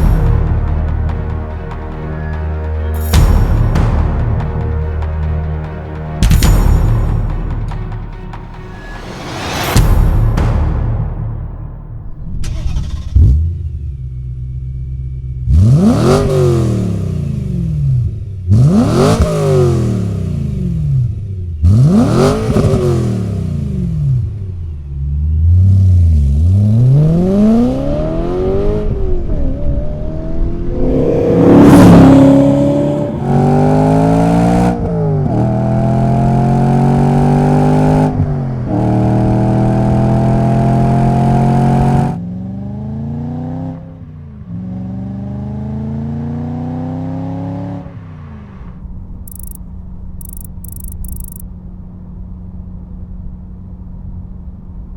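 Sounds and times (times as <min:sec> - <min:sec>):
car engine revving and accelerating: 0:15.4 - 0:24.3, 0:24.9 - 0:48.7.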